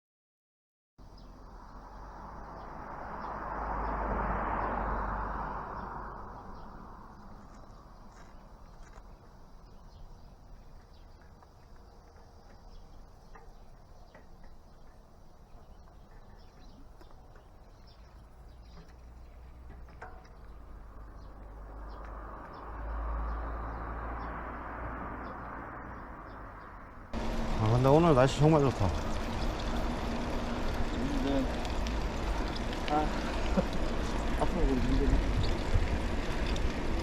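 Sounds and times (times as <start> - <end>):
insects buzzing: 27.2 - 37.0
wind rumble on microphone: 29.0 - 37.0.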